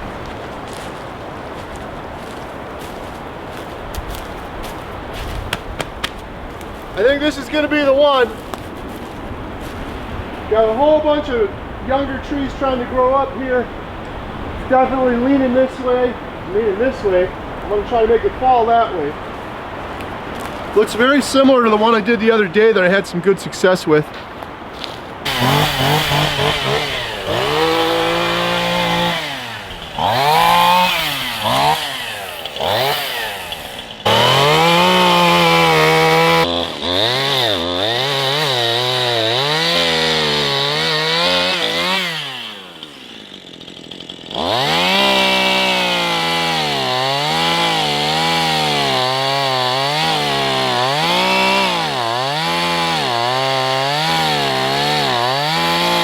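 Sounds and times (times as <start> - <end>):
chainsaw cutting tree: 0.0 - 18.8, 24.8 - 56.0.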